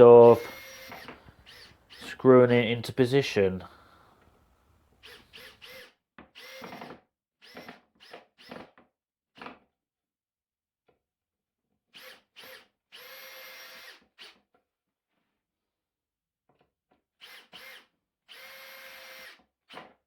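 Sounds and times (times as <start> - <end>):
power drill driving screws into wood: 0.2 - 2.2, 5.0 - 8.8, 11.9 - 14.5, 17.2 - 20.0.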